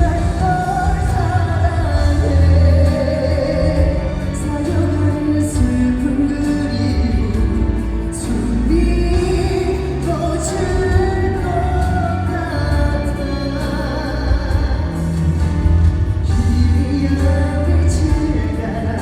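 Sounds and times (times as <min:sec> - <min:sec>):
band accompaniment with bass: 0:00.0 - 0:19.0
man singing pop ballad: 0:00.0 - 0:19.0.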